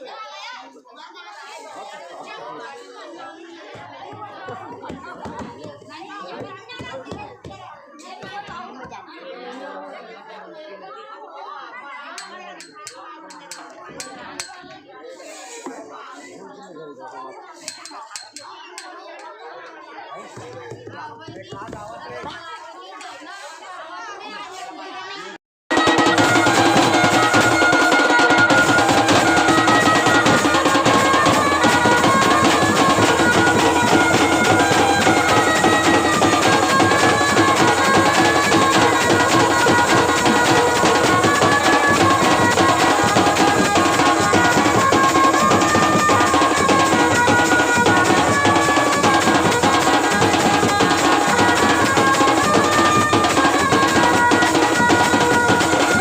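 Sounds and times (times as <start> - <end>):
wedding music with drums: 3.6 - 9.0, 12.2 - 14.8, 20.2 - 22.4, 25.7 - 56.0.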